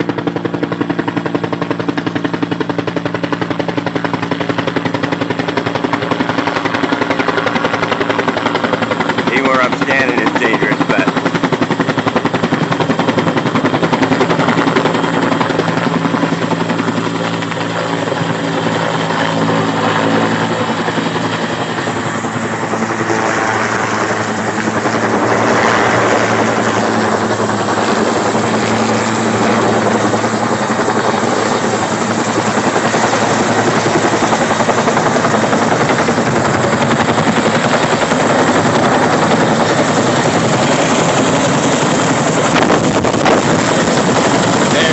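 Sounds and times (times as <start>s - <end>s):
helicopter rotor beating: 0.0s - 44.9s
turbine whine: 0.0s - 44.9s.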